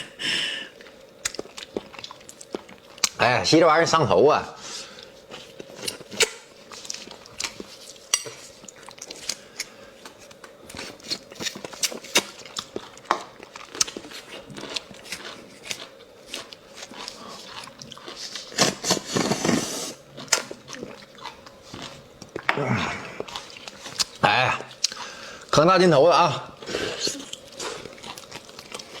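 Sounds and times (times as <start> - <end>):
wet chewing and smacks: 0.8 - 3.2, 5.0 - 18.5, 23.2 - 25.2, 26.5 - 29.0.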